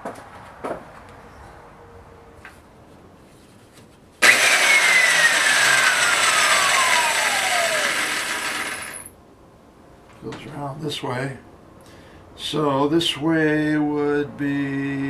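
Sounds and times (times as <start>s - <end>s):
concrete saw running: 4.2s - 9.1s
saw motor whine falling in pitch: 4.2s - 9.1s.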